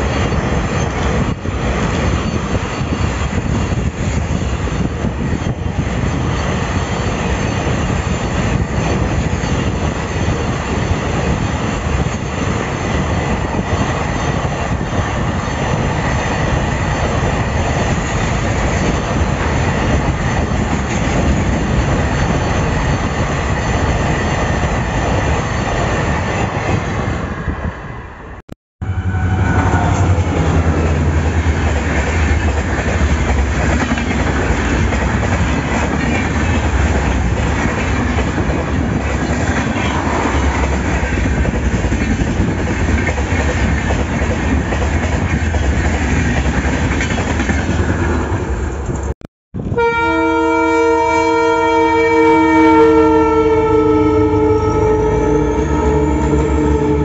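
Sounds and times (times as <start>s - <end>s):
locomotive horn blast: 28.8s - 31.2s, 49.7s - 57.0s.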